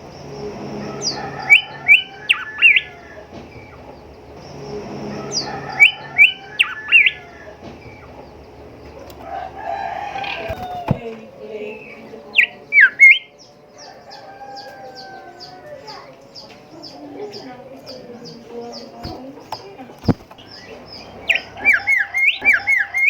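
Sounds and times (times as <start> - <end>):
bird whistling song: 0.0 - 11.0, 11.7 - 15.6, 20.0 - 23.0.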